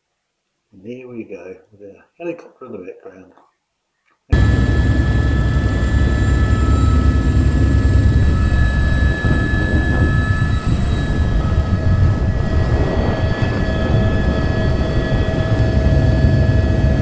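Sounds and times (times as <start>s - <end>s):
helicopter rotor rumble: 4.3s - 17.0s
helicopter turbine whine: 4.3s - 17.0s.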